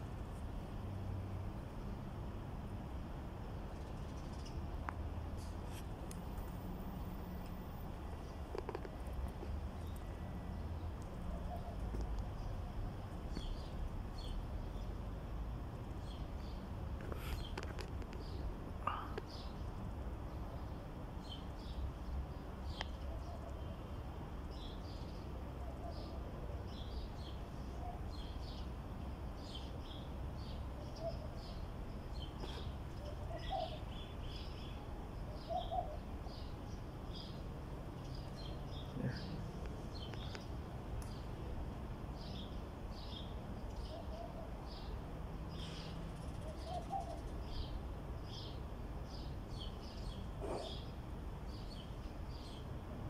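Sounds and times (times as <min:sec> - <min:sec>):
small birds chirping: 0:03.7 - 0:07.4, 0:08.0 - 0:15.2, 0:15.9 - 0:52.8
small bird chirping: 0:45.6 - 0:48.6.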